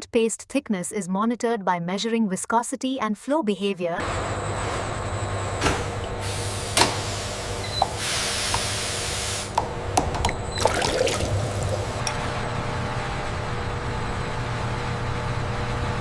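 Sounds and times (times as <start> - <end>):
machinery hum and hiss: 5.6 - 9.6.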